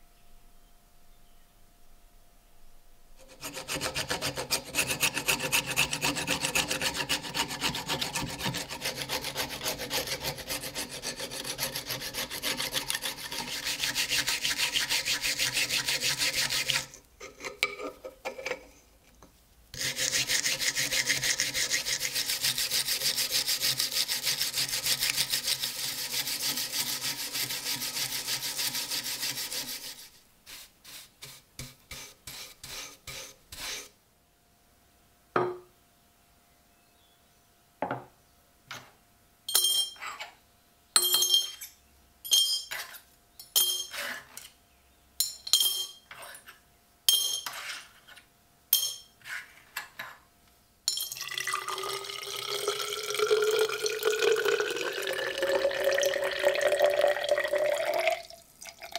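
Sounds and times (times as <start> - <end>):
hand sanding rasping strokes: 3.2 - 17.0, 19.8 - 33.9.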